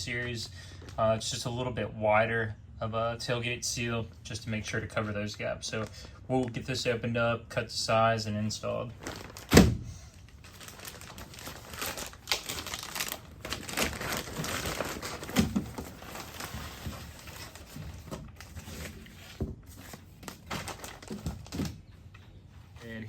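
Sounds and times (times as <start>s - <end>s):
packaging crinkling and rustling: 9.0s - 21.8s.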